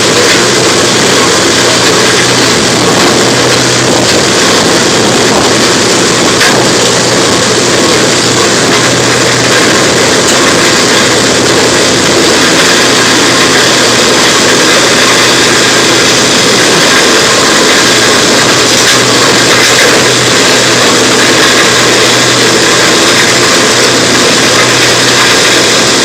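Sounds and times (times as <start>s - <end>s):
wood chipper running: 0.0s - 26.0s.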